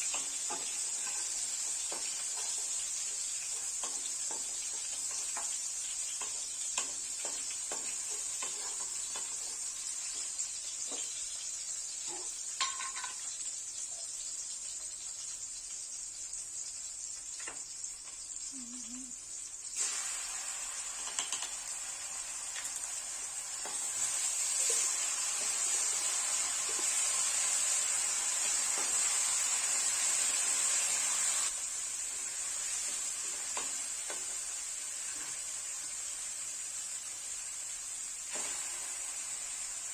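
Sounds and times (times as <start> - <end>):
food sizzling in a pan: 0.0 - 39.9
utensil clicking against pan: 21.0 - 21.6.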